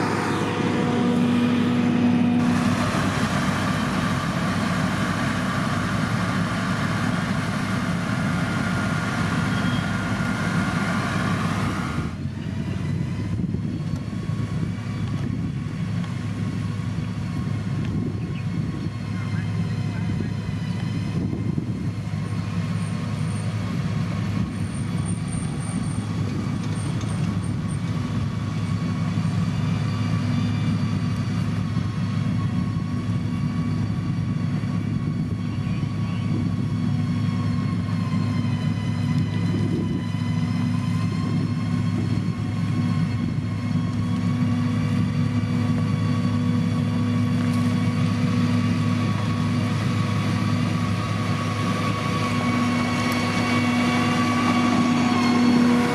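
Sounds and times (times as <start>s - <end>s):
high whine: 0.0s - 26.8s, 27.5s - 55.9s
diesel engine droning: 0.0s - 55.9s.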